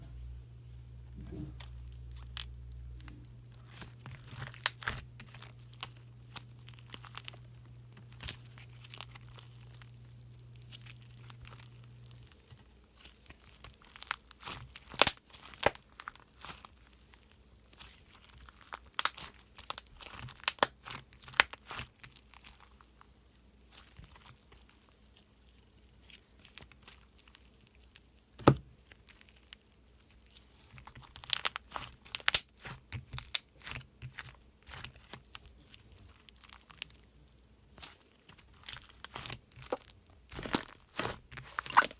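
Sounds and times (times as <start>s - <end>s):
low steady hum: 0.0s - 15.0s
sticky slime clicks and crackles: 2.2s - 7.5s, 10.6s - 22.6s, 30.2s - 36.9s.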